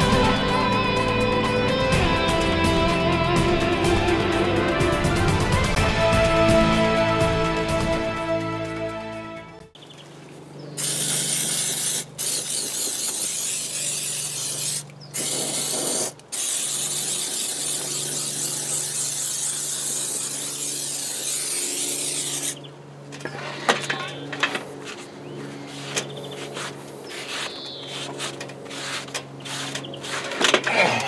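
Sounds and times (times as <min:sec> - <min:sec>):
paint spraying hiss: 0:10.8 - 0:22.6.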